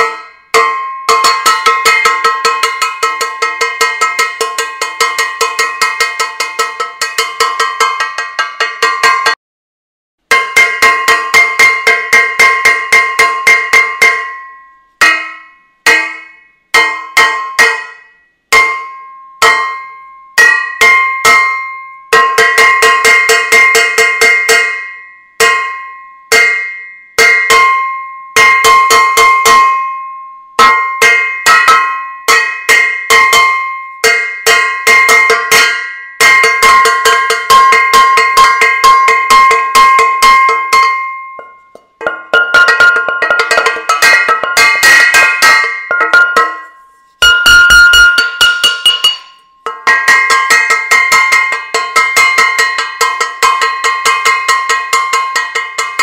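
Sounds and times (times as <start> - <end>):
metal saucepan clanging: 0.0 - 9.3, 34.5 - 56.0.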